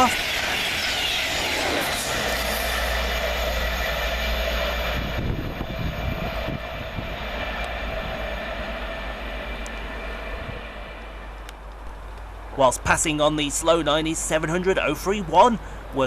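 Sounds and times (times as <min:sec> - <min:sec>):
steady humming tone: 0:00.0 - 0:12.5
train wheels on rails: 0:00.0 - 0:15.6.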